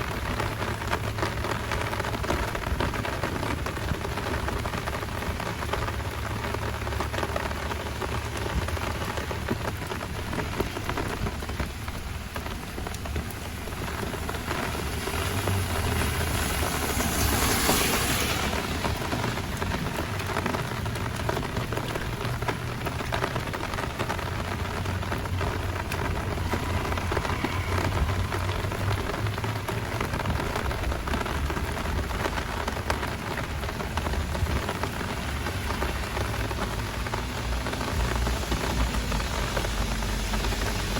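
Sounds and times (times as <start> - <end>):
heavy rain hissing: 0.0 - 40.9
low rumble: 7.2 - 34.6.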